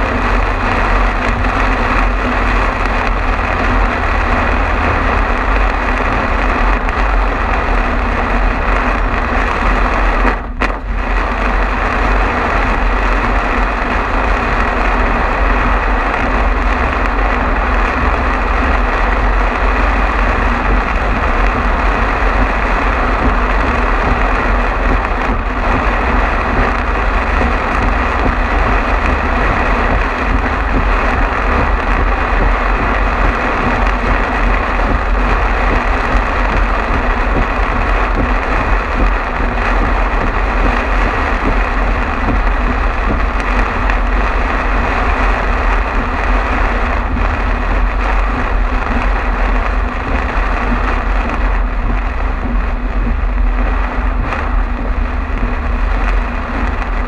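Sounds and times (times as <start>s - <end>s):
rain and spray hissing: 0.0s - 57.0s
tyres rumbling on wet road: 0.0s - 57.0s.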